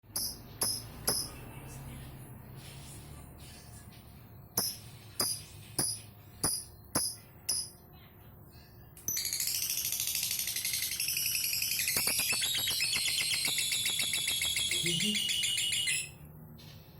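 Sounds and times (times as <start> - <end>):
lovebird chattering trill: 10.6 - 16.2.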